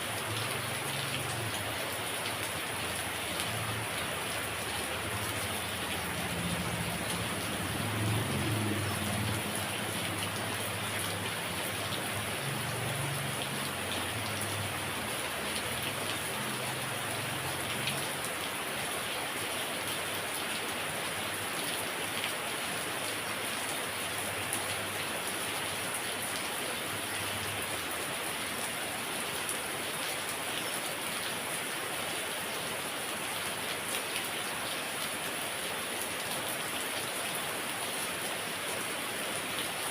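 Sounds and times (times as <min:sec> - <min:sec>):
heavy rain hissing: 0:00.0 - 0:19.4.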